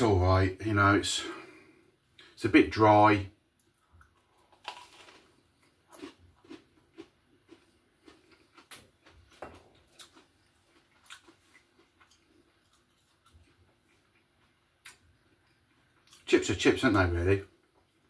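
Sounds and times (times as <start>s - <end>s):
chewing crunches: 3.6s - 16.3s.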